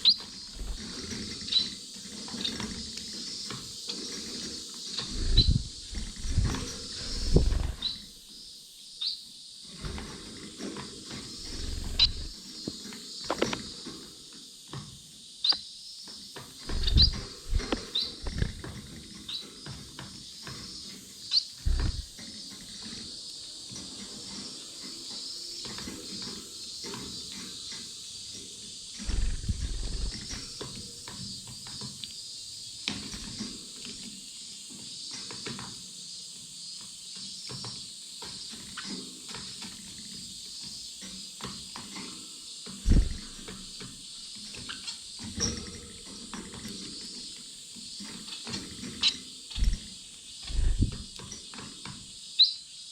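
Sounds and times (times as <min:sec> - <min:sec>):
birds pecking at seed: 0:00.0 - 0:08.1, 0:09.7 - 0:14.1, 0:16.1 - 0:35.8, 0:37.2 - 0:52.0
birds fluttering thumps: 0:00.0 - 0:08.5, 0:09.6 - 0:52.2
birds chirping: 0:00.0 - 0:14.3, 0:15.4 - 0:52.9.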